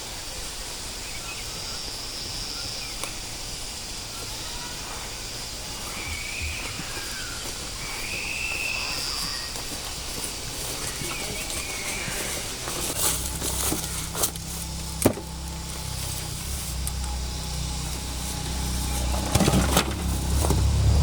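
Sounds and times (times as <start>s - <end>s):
outdoor background hiss: 0.0s - 21.0s
faint high-pitched calls: 4.1s - 18.9s.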